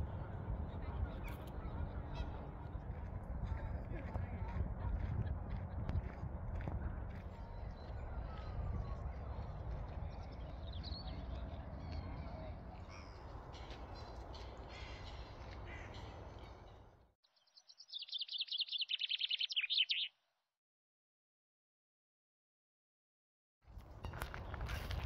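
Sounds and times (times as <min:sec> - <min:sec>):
low outdoor rumble: 0:00.0 - 0:16.8
bird chirps: 0:10.1 - 0:20.2
bird chattering: 0:17.9 - 0:20.1.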